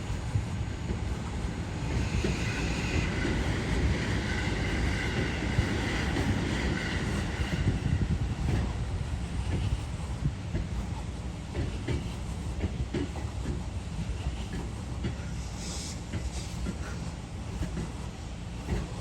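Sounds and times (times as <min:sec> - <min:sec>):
high-pitched train whine: 0:00.0 - 0:08.7
electric train rumbling: 0:00.0 - 0:19.0.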